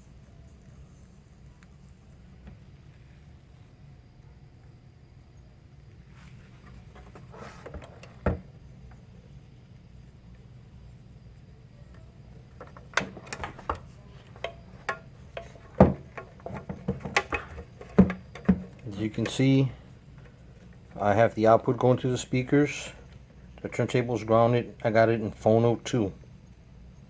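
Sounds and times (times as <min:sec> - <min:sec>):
low steady hum: 0:00.0 - 0:27.0
mixer handling clicks and knocks: 0:12.6 - 0:19.5.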